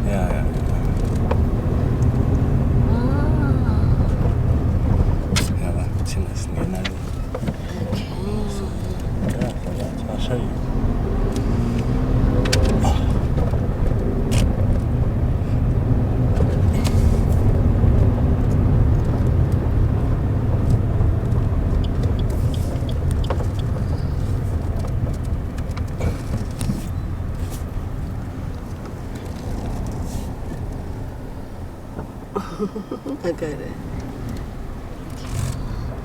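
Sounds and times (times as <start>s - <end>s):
car driving rumble: 0.0s - 36.0s
light clicks and knocks: 18.4s - 27.7s.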